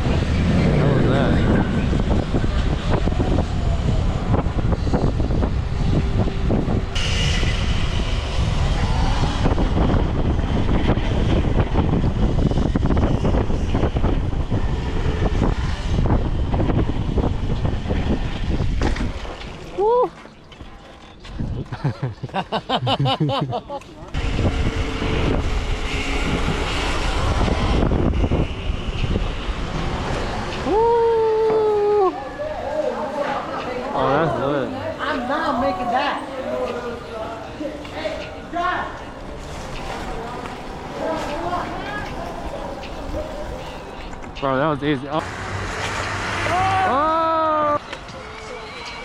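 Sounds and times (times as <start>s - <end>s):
wind buffeting microphone: 0.0s - 20.0s, 21.2s - 21.9s, 24.1s - 37.2s.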